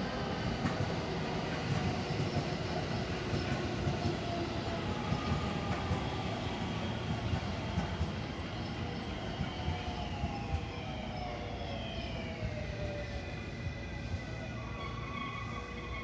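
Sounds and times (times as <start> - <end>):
train wheels rumbling on rail: 0.0 - 16.0
rail joint clicks: 0.6 - 2.6, 3.3 - 6.3, 6.9 - 10.8.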